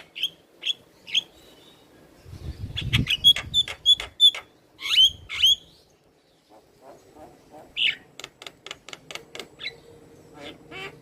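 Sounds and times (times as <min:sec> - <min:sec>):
myna calling: 0:09.3 - 0:11.0.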